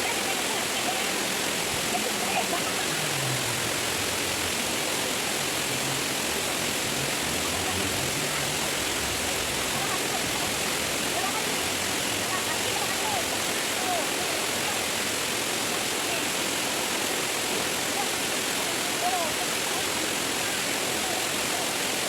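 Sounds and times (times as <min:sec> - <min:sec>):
waterfall and stream rushing: 0:00.0 - 0:22.0.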